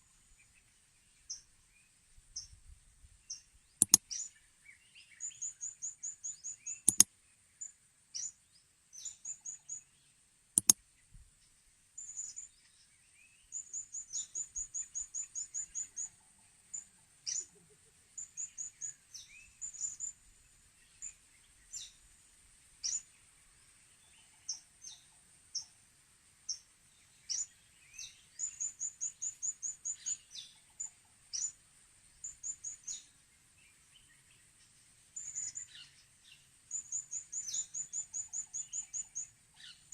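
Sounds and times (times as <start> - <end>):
faint high hiss: 0.0 - 39.9
sharp clicks: 3.8 - 4.0, 6.9 - 7.1, 10.6 - 10.8.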